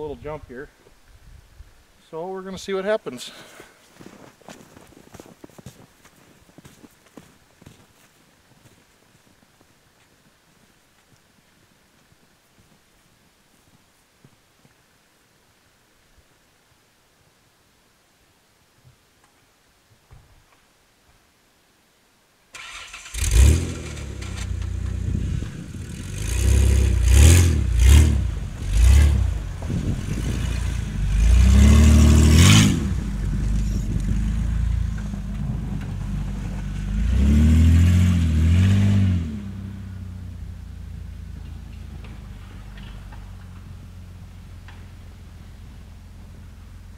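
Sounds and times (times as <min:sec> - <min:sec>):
car engine starting: 0:22.5 - 0:46.9
engine idling: 0:22.6 - 0:37.0
engine revving: 0:22.6 - 0:40.1.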